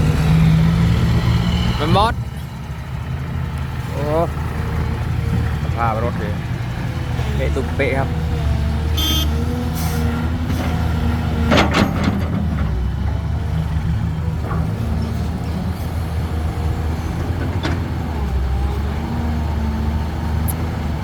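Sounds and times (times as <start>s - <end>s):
heavy diesel engine running: 0.0s - 21.0s
short knocks or clanks: 10.4s - 13.2s.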